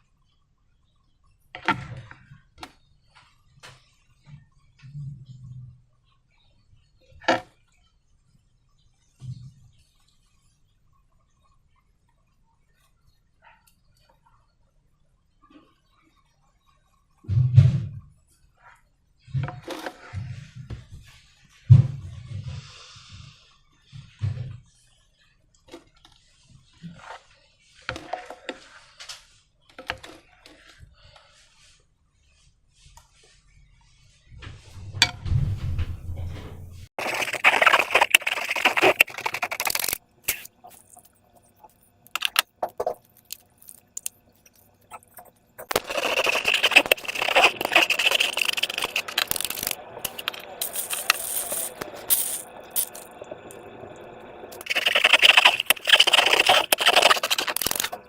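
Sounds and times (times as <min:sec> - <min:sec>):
crackling rattling clicks of slime materials: 0:54.6 - 0:58.0.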